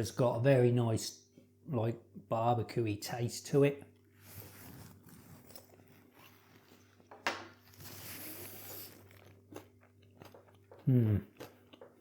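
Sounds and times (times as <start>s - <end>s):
person chewing food: 4.8s - 12.0s.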